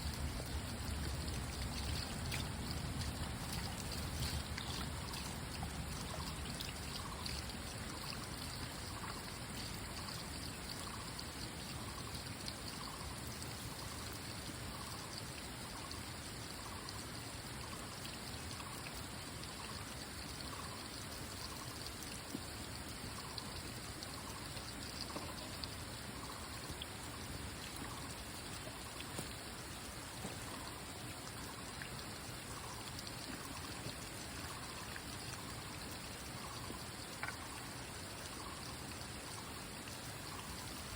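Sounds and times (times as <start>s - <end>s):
water trickling: 0.0s - 40.9s.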